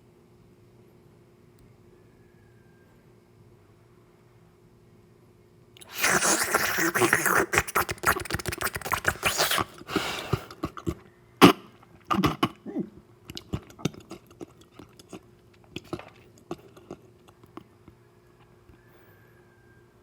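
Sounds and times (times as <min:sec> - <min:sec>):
noisy slurp: 0:05.8 - 0:12.6, 0:13.2 - 0:17.7
wet chewing: 0:05.8 - 0:12.6, 0:13.2 - 0:18.0
mouth clicks: 0:05.8 - 0:17.7.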